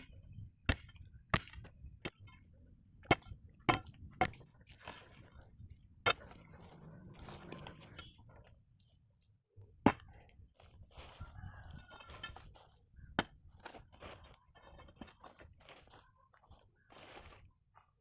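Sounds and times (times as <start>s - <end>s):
faint scraping: 6.2s - 8.6s.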